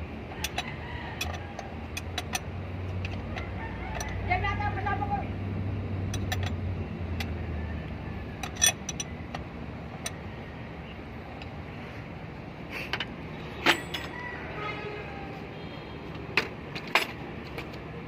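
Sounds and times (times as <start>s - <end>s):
metallic clicks from tools: 0.4s - 4.2s, 8.4s - 10.2s.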